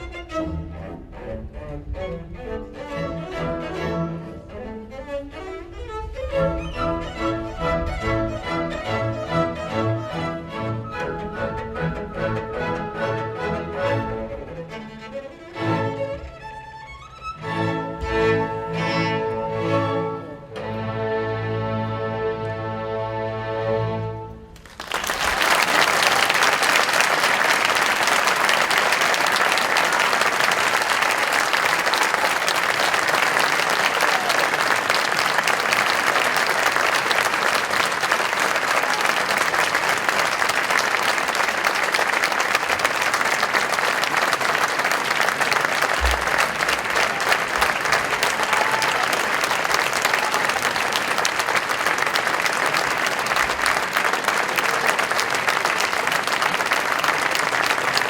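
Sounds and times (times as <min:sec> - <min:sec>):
audience applauding: 0:24.6 - 0:58.0.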